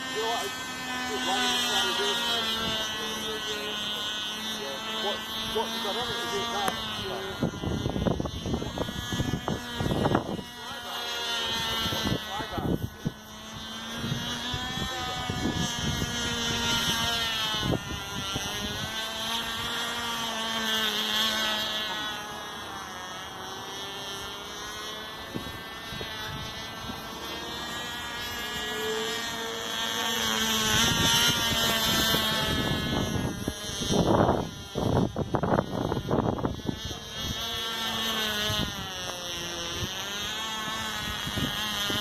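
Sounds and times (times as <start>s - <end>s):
model plane engine buzzing: 0.0s - 42.0s.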